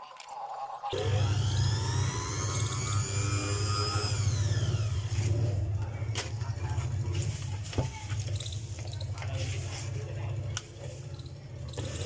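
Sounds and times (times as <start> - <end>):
mixer grinder motor humming: 0.9 - 7.2.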